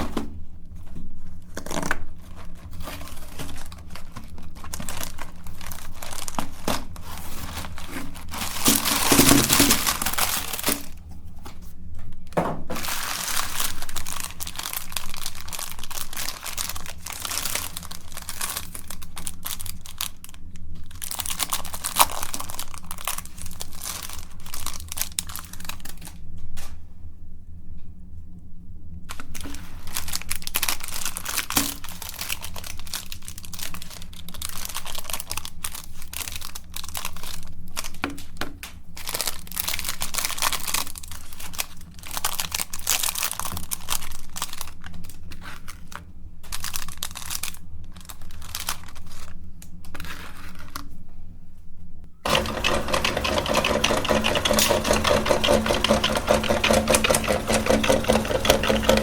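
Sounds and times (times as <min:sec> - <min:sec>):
packaging crinkling and tearing: 0:00.8 - 0:11.0, 0:12.1 - 0:26.7, 0:29.1 - 0:51.0
electric meat grinder whirring: 0:52.3 - 0:59.0.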